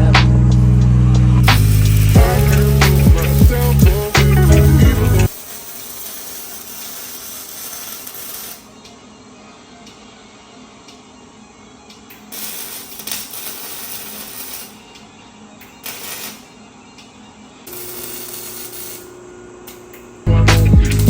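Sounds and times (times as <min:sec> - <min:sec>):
steady hum: 0:00.0 - 0:05.3
loud hip hop music: 0:00.0 - 0:05.4, 0:20.3 - 0:21.0
hissing tool: 0:00.6 - 0:08.7, 0:17.7 - 0:19.3.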